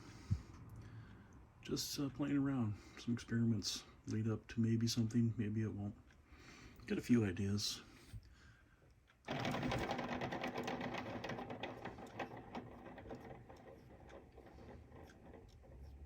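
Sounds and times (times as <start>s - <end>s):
spinner bearings rattling: 9.3s - 16.0s.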